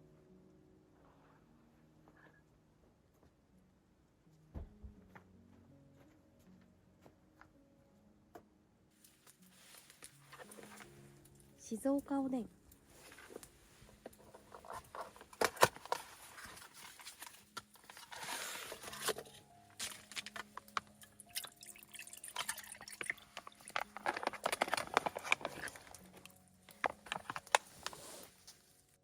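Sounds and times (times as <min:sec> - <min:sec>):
soft background music: 0:00.0 - 0:29.0
liquid pouring and sloshing: 0:19.8 - 0:26.2
handling clicks and knocks: 0:22.9 - 0:28.0.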